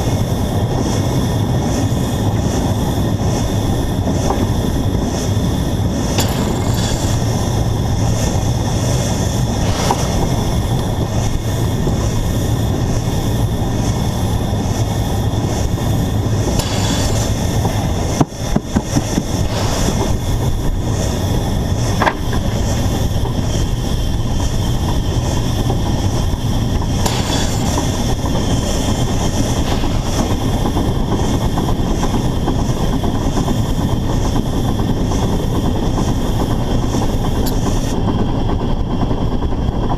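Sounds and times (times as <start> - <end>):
steam locomotive running rumble: 0.0 - 39.9
sharp clicks and knocks: 6.1 - 13.1, 15.6 - 21.2, 21.8 - 23.4, 24.8 - 33.5.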